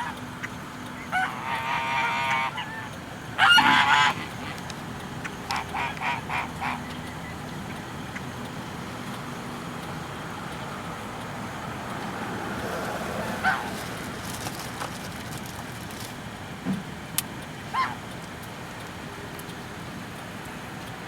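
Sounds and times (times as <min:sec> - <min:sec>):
waterfowl honks: 0:00.0 - 0:08.3, 0:13.1 - 0:13.9, 0:17.7 - 0:18.0
slow car rumble: 0:00.0 - 0:21.0.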